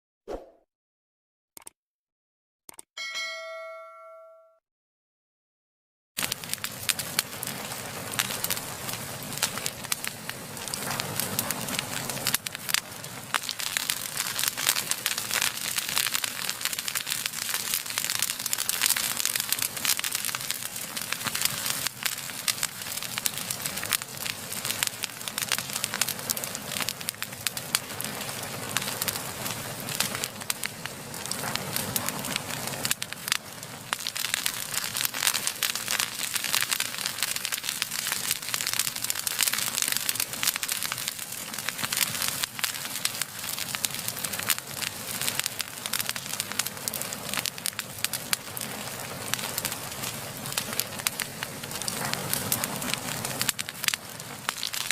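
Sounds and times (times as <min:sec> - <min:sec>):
wood fire crackling and popping: 0:06.2 - 0:54.9.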